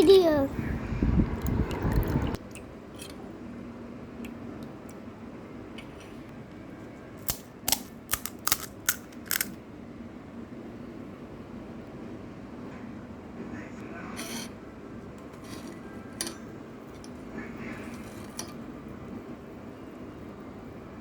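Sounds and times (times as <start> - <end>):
crisp shells crunching: 7.7 - 9.5.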